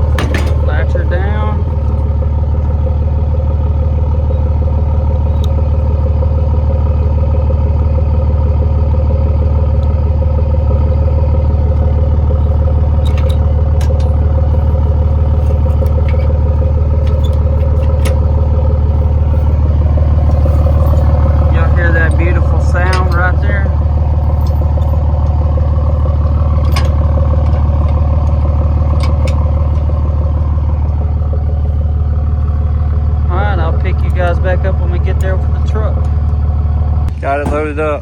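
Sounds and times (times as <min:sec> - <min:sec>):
vehicle engine and road noise: 0:00.0 - 0:38.0
light clicks and rattles: 0:12.5 - 0:19.6.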